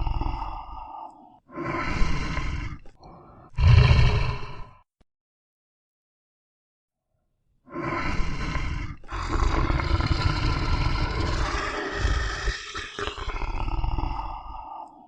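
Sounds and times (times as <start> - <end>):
large wild animal roaring: 1.6 - 4.8, 7.8 - 15.0.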